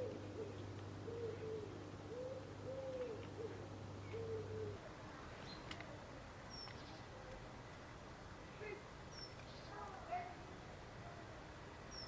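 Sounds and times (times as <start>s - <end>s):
pigeon cooing: 0.0s - 4.8s
low steady hum: 0.0s - 9.1s.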